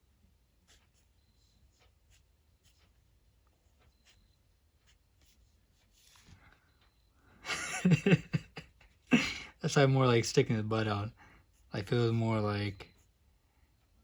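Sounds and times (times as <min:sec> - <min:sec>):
pen scratching on paper: 0:00.6 - 0:06.3.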